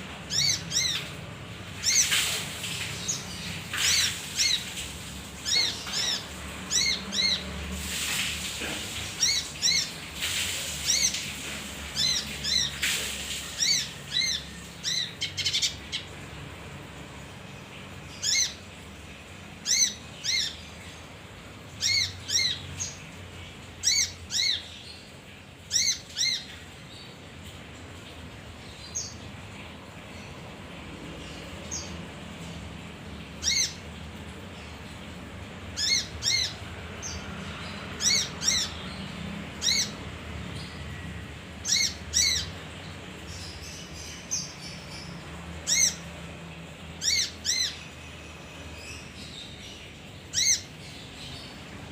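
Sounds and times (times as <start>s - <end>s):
bird chirping: 0.2s - 1.2s, 5.4s - 7.5s, 35.8s - 41.0s.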